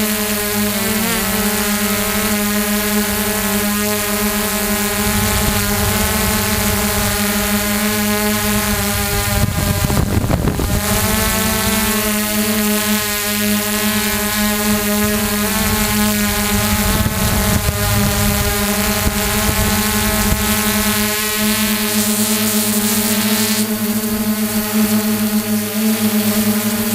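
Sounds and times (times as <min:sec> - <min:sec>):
drone propellers whining: 0:00.1 - 0:21.4
wind rumbling on microphone: 0:01.8 - 0:12.9, 0:13.6 - 0:21.9.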